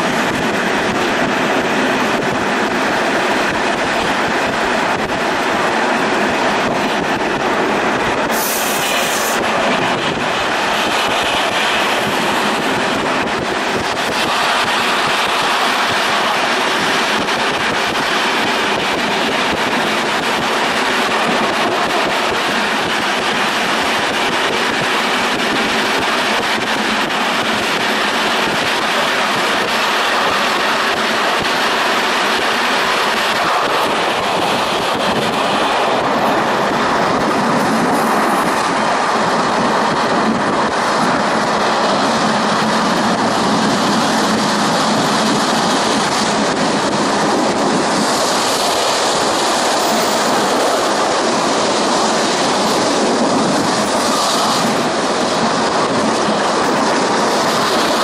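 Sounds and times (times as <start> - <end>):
train wheels rolling on rails: 0.0 - 58.0.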